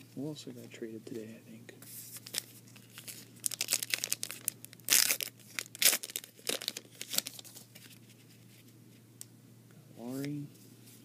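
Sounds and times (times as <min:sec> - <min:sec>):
wrapper tearing and crinkling: 0:02.2 - 0:08.0.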